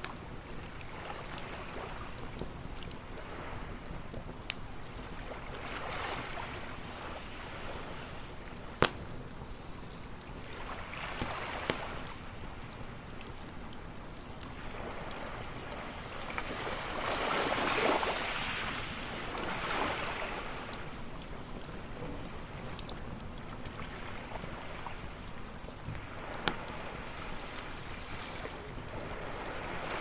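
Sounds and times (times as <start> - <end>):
campfire crackling: 0.0 - 30.0
waves washing onto beach: 0.0 - 30.0.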